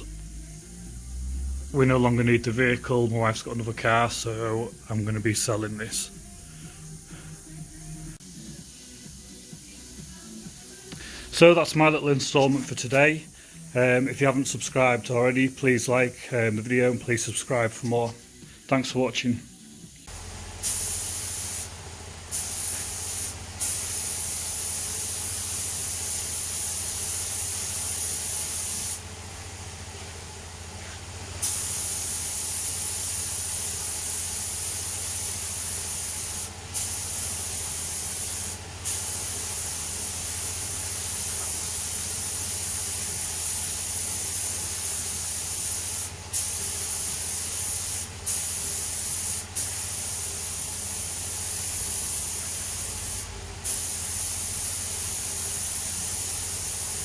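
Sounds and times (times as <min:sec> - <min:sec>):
steady low hum: 0:00.0 - 0:23.6
spray hissing: 0:00.0 - 0:57.0.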